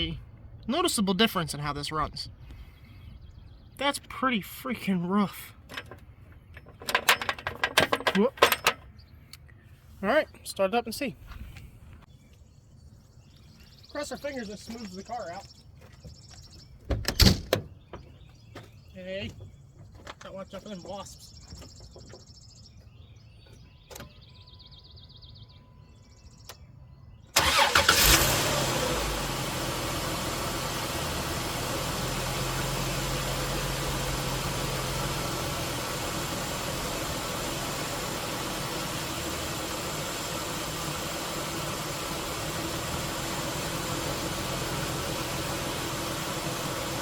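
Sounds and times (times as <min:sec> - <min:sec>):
car engine starting and idling: 0:27.3 - 0:47.0.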